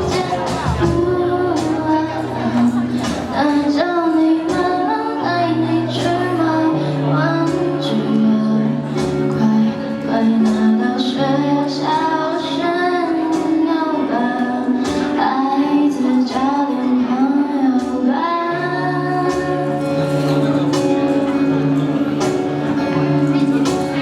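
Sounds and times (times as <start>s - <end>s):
drum kit beat: 0.0s - 3.8s, 19.3s - 24.0s
woman singing: 0.0s - 20.7s
guitar chords: 0.0s - 24.0s.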